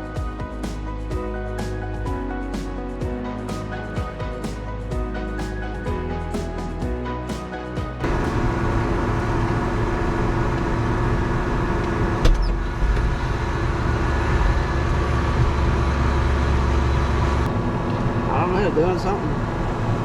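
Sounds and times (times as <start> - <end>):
background music: 0.0 - 9.9
tractor diesel engine running: 8.0 - 18.5.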